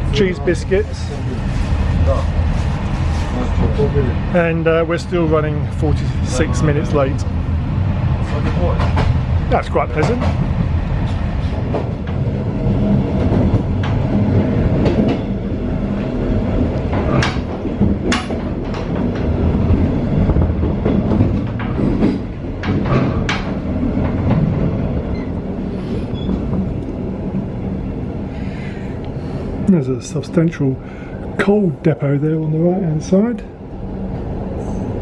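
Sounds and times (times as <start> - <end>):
train wheels rumbling on rails: 0.0 - 35.0
rail clicks and knocks: 8.2 - 27.4.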